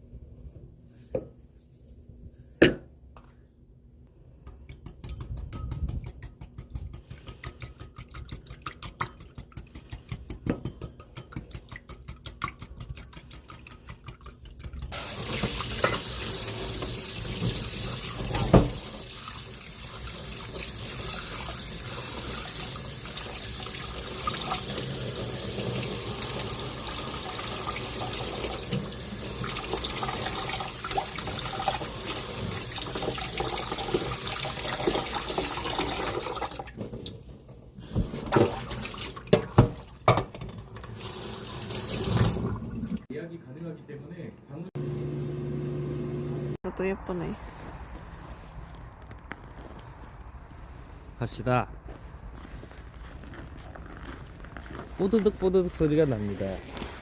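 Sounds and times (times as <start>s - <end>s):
tap running into sink: 15.0s - 19.0s.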